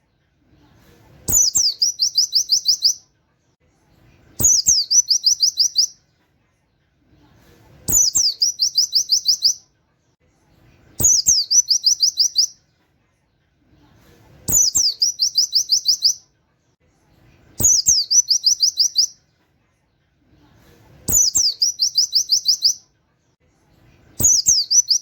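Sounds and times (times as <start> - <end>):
small bird singing chirps: 1.2 - 3.1, 4.0 - 6.1, 7.8 - 9.7, 10.7 - 12.7, 14.4 - 16.4, 17.4 - 19.3, 21.0 - 23.0, 23.9 - 25.0.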